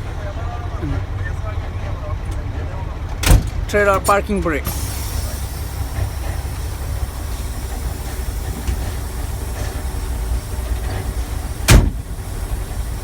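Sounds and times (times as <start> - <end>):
diesel engine idling: 0.0 - 13.0
air brake valve burst: 4.7 - 13.0.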